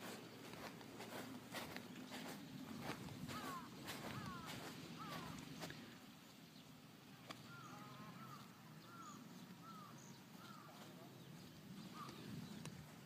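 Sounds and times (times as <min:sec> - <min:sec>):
faint bird calling: 0:00.5 - 0:06.0, 0:07.3 - 0:12.9.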